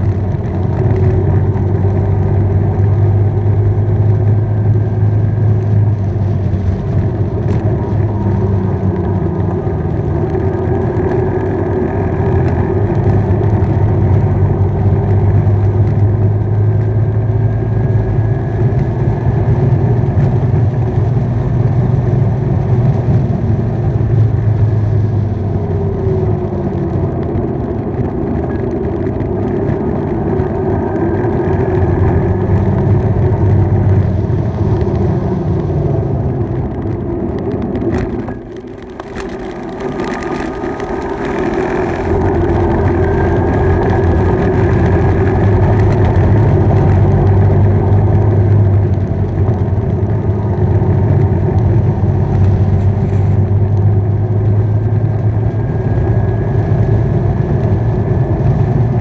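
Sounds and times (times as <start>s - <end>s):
road and wind noise: 0.0s - 59.0s
motorbike engine running: 23.0s - 59.0s.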